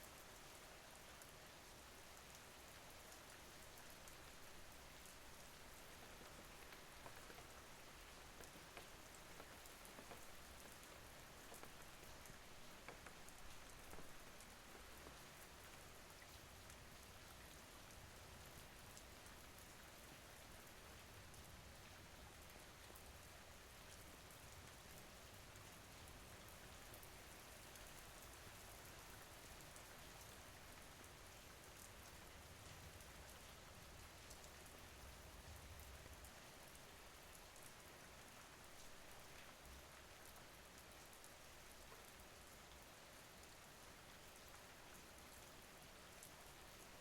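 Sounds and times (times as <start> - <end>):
faint rain: 0.0 - 47.0
raindrop ticks: 3.1 - 17.2.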